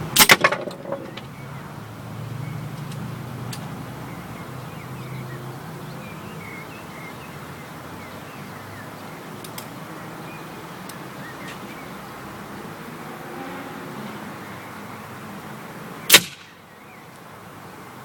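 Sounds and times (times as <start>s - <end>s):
small birds chirping: 0.7s - 12.9s
faint sharp clicks: 9.4s - 9.8s.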